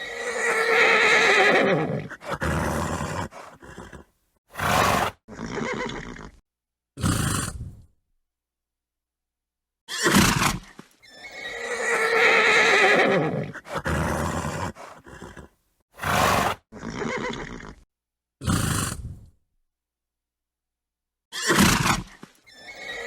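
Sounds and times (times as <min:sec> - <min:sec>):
horse snorting: 0:00.0 - 0:06.4, 0:07.0 - 0:07.9, 0:10.0 - 0:17.8, 0:18.4 - 0:19.3
horse whinnying: 0:00.0 - 0:06.4, 0:09.9 - 0:17.8, 0:21.3 - 0:23.0.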